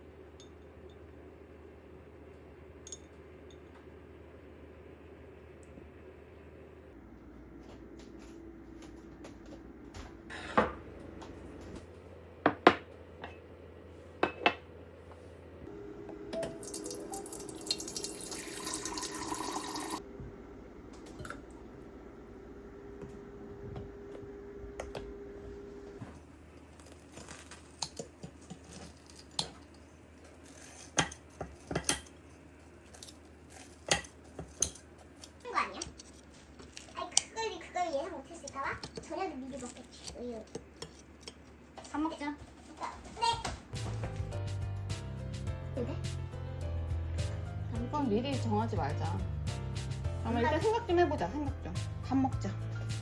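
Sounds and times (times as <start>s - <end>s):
tap running: 15.7s - 32.1s
dishes and utensils clinking: 26.8s - 32.2s.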